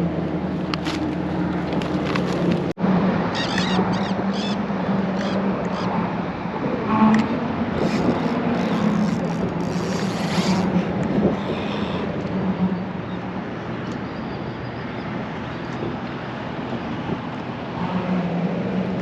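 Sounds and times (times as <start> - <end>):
traffic rushing hum: 0.0 - 19.0.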